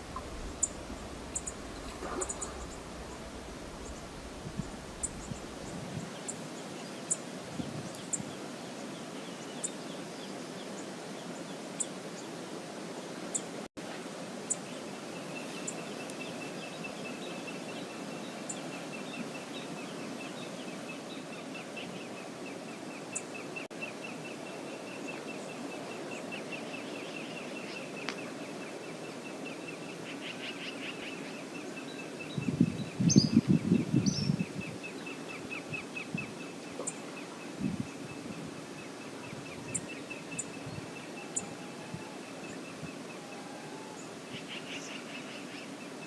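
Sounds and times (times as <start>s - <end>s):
chirping trill: 0.0s - 5.7s
river water rushing: 0.0s - 5.8s
low rumbling burst: 0.0s - 6.0s
high bird calls: 0.0s - 6.4s.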